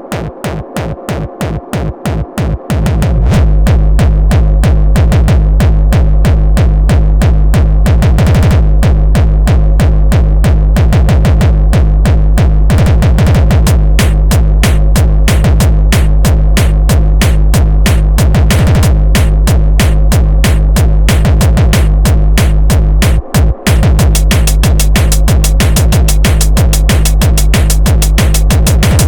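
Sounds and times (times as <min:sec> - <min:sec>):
heavy kick drum: 0:00.0 - 0:29.0
rapid drum-roll fills: 0:00.1 - 0:29.0
electronic dance music: 0:12.4 - 0:29.0.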